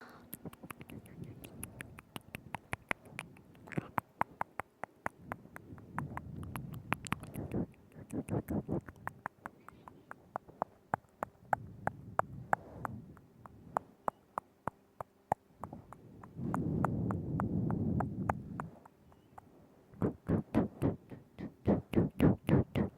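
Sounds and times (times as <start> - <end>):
soft low mouth sounds: 0.0 - 22.9
wet tongue clicks and lip smacks: 0.2 - 11.6.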